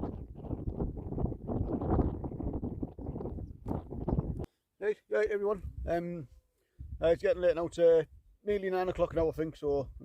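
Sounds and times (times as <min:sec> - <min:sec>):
wind buffeting microphone: 0:00.0 - 0:04.5, 0:05.5 - 0:06.2, 0:06.8 - 0:08.3.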